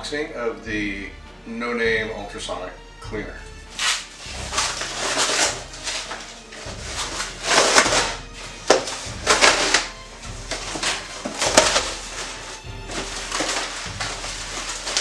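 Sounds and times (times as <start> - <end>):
background music with bass line: 0.0 - 15.0
packaging rustling: 10.5 - 15.0.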